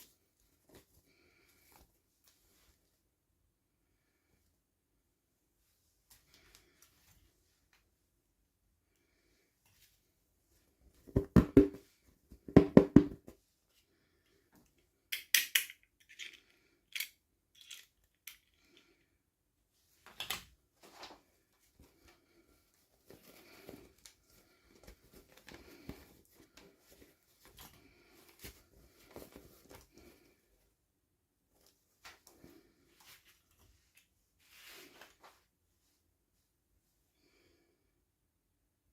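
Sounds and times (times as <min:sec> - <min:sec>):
soft rustling: 0:00.0 - 0:03.2, 0:20.7 - 0:37.0.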